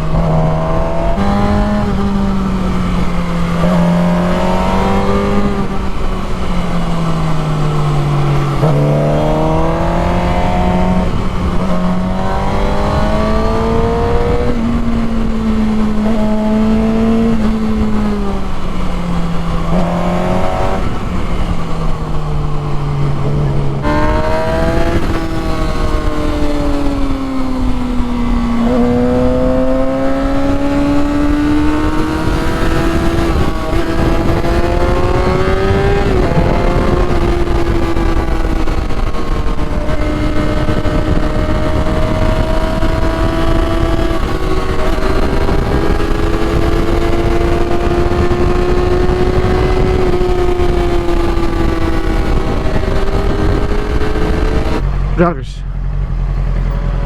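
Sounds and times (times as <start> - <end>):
motorcycle engine revving: 0.0 - 57.0
wind and road noise: 0.0 - 57.0.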